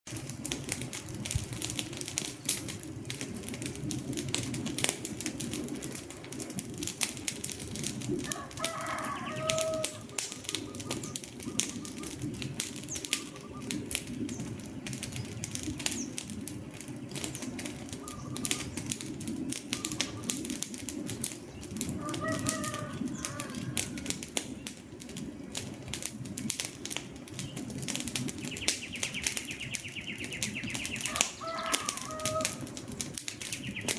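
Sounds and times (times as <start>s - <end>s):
low rush of flame: 0.1s - 33.9s
wood fire crackling: 0.1s - 33.9s
bird calls: 8.2s - 20.6s, 21.3s - 24.6s, 27.0s - 33.9s
high bird trill: 8.3s - 12.2s.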